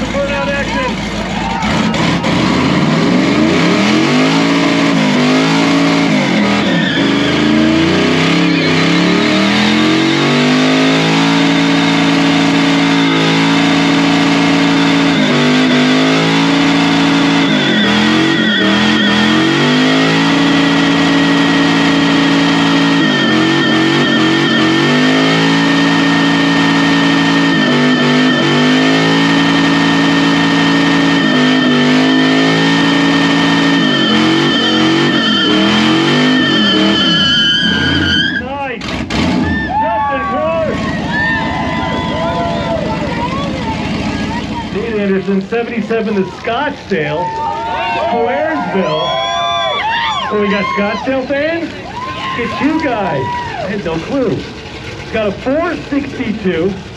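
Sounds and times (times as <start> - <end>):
engine at high revs: 0.0 - 39.6, 40.5 - 46.3
tires squealing: 0.0 - 56.9.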